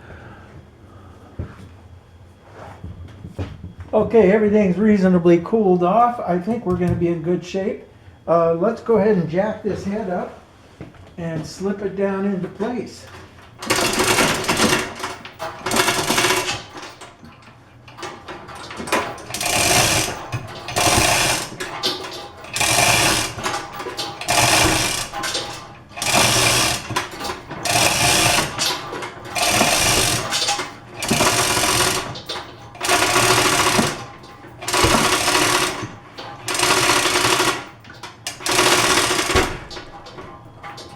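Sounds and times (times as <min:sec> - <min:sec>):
jack being pumped: 0:13.1 - 0:40.9.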